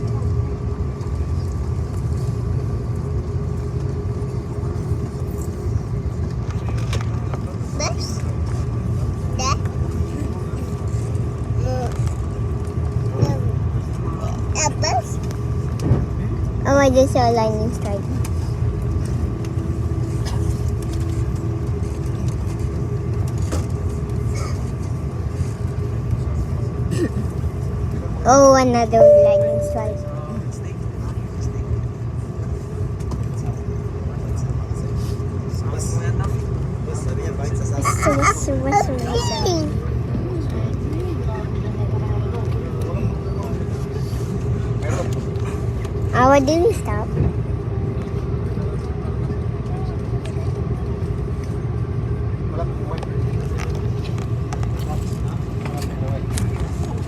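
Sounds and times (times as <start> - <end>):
aircraft cabin engine rumble: 0.0 - 57.0
faint steady whine: 28.9 - 30.7.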